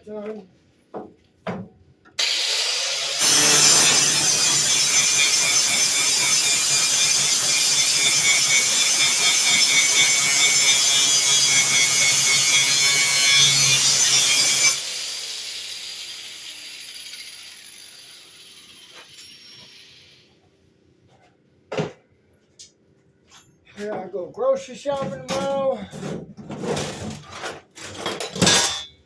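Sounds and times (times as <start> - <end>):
angle grinder grinding metal: 2.2 - 20.3
grinder motor winding down: 2.2 - 20.3.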